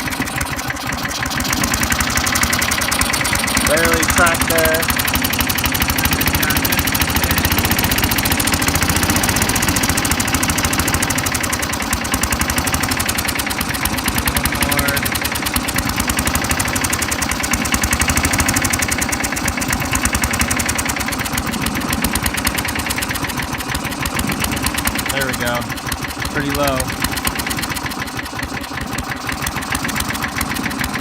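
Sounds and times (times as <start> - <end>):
small lawn mower engine idling: 0.0 - 31.0.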